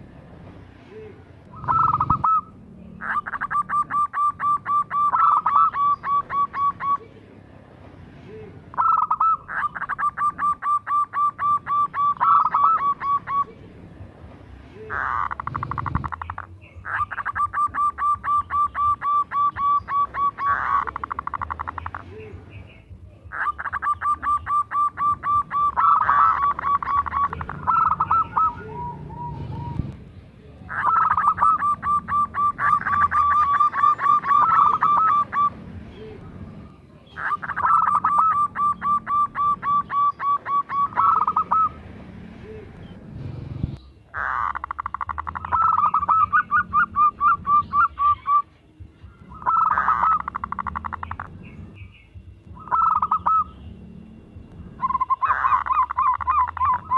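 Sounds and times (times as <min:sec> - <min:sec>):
dove cooing in staccato notes: 0:01.5 - 0:07.1, 0:08.5 - 0:13.5, 0:14.9 - 0:22.3, 0:23.3 - 0:30.0, 0:30.7 - 0:36.2, 0:37.2 - 0:41.8, 0:44.1 - 0:48.5, 0:49.1 - 0:51.4, 0:52.5 - 0:53.6, 0:54.8 - 0:56.9.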